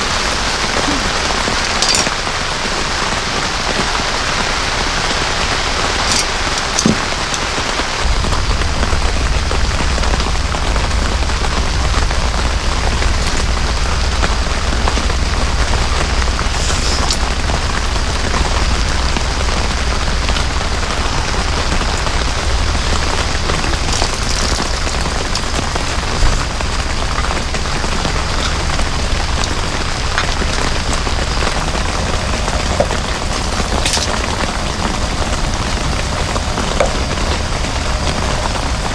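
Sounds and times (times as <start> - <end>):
heavy rain pouring: 0.0 - 38.9
low rumble: 8.0 - 38.6.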